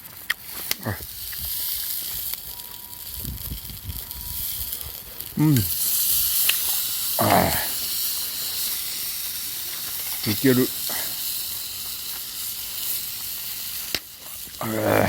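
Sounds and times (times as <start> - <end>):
food sizzling over fire: 0.0 - 15.0
murmured voice: 14.6 - 15.0.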